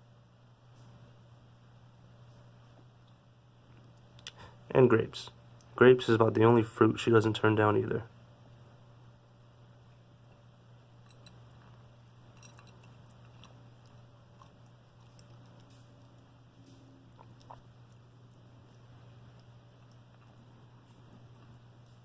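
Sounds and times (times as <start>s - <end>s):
steady low hum: 0.0s - 22.0s
pet chewing clicks: 12.3s - 22.0s.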